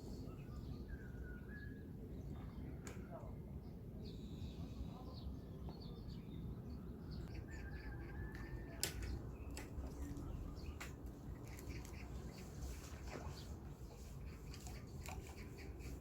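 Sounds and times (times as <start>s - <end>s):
low outdoor background: 0.0s - 16.0s
small birds chirping: 0.0s - 16.0s.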